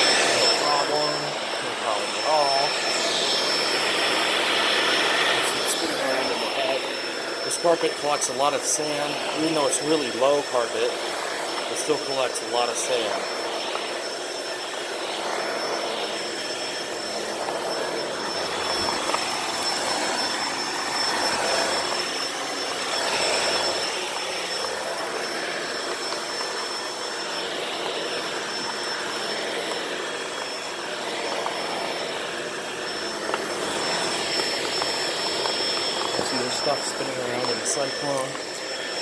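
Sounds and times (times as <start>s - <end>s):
vacuum cleaner running on carpet: 0.0s - 39.0s.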